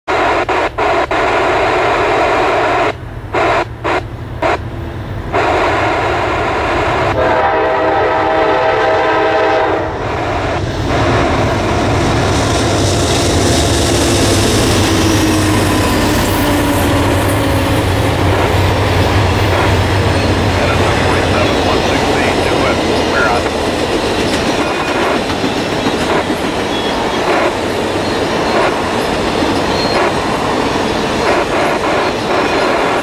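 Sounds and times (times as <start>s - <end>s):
train wheels rushing on rails: 0.1s - 33.0s
diesel locomotive horn: 5.3s - 10.0s, 13.9s - 23.5s.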